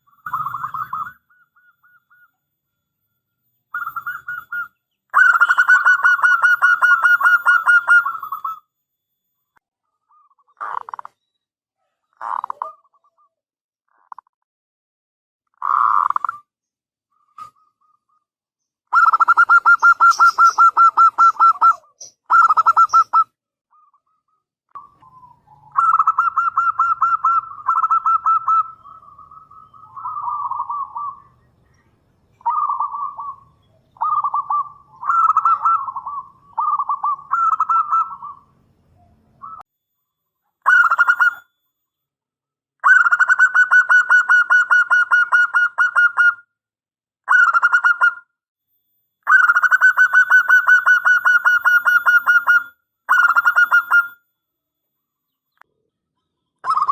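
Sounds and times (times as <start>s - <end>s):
dove cooing: 0.0s - 2.3s, 3.7s - 8.6s, 11.8s - 13.3s, 18.9s - 31.4s, 32.3s - 39.6s.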